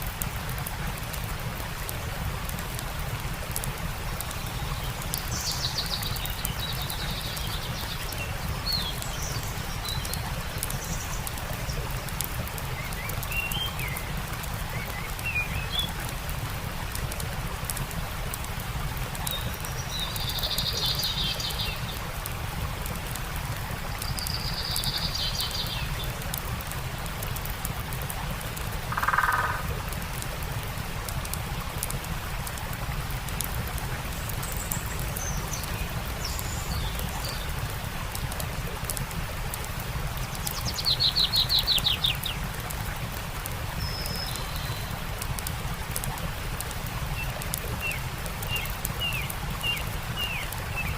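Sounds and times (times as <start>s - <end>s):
campfire crackling: 0.0s - 50.9s
stream flowing: 0.0s - 50.9s
wild birds calling: 28.9s - 29.7s.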